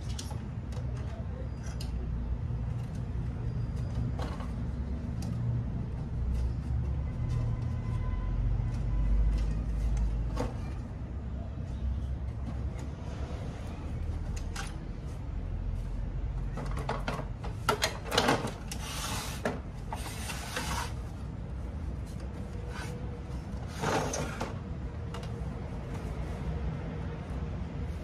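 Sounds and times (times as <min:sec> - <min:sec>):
clicks and knocks of parts: 0:14.2 - 0:14.9, 0:16.4 - 0:20.4
scraping or rubbing: 0:18.8 - 0:21.2.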